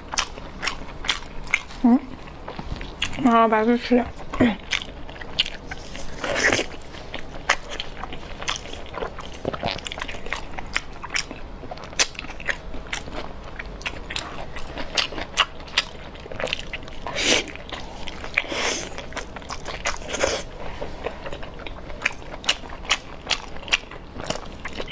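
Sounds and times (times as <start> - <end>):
person chewing wet mouth sounds: 0.0 - 3.2, 4.2 - 24.9.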